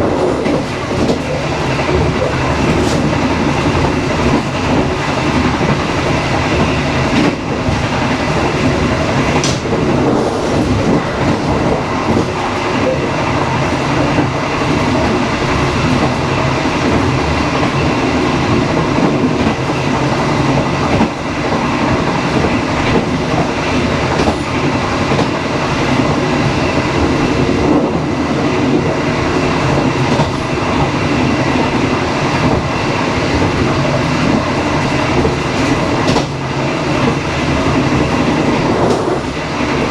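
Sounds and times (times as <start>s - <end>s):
wheels clacking over rail joints: 0.0s - 16.2s, 33.3s - 39.9s
train carriage rumbling and rattling: 0.0s - 39.9s.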